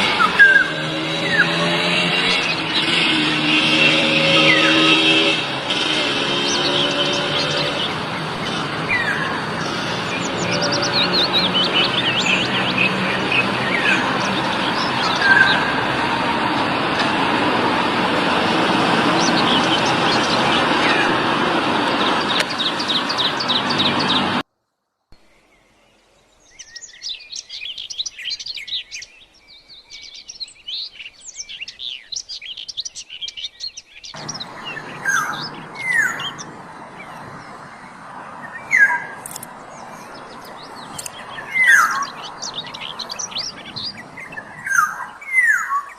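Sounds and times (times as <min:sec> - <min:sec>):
high chattering chirps: 0:00.0 - 0:16.0
wild birds chirping and calling: 0:00.0 - 0:24.4, 0:26.4 - 0:45.9.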